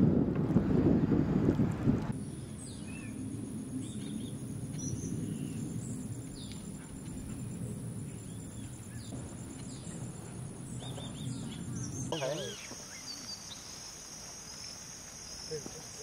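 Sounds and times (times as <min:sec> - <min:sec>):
steady low rumble: 0:00.0 - 0:12.6
faint high whine: 0:02.1 - 0:16.0.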